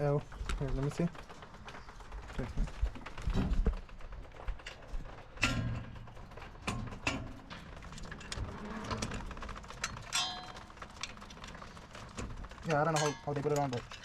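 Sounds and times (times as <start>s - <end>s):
hand tools clicking on metal: 9.8s - 11.2s, 12.1s - 14.0s.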